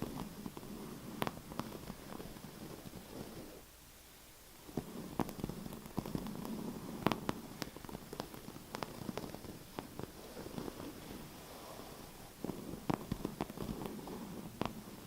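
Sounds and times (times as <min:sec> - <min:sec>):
dry scratching: 0:04.8 - 0:15.0.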